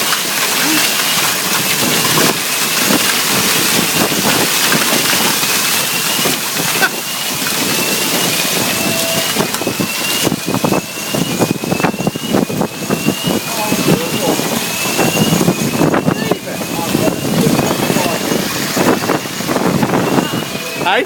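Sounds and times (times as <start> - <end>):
sharp hail impacts: 0.0 - 9.8
hail and rain hissing: 0.0 - 10.7, 12.4 - 20.4
fire alarm rising sweep: 4.0 - 21.0.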